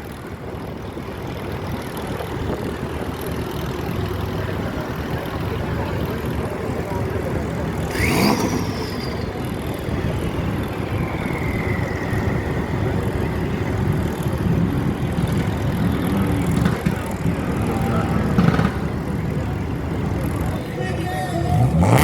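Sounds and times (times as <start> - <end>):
car engines rumbling: 0.0 - 22.0
passing car whine: 0.3 - 22.0
sharp pitch sweep: 7.9 - 13.7.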